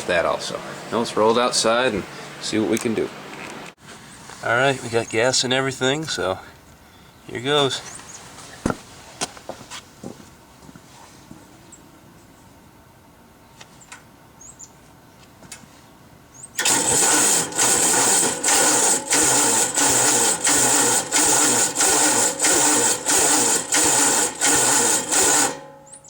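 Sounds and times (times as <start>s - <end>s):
electric starter cranking engine: 16.6s - 26.0s.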